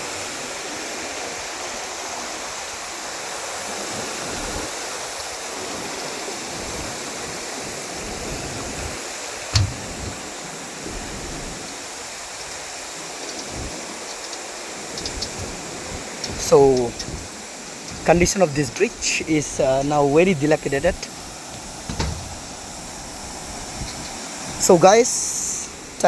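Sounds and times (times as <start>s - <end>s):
flooded stream rushing: 0.0s - 26.0s
sharp knock: 9.6s - 10.1s.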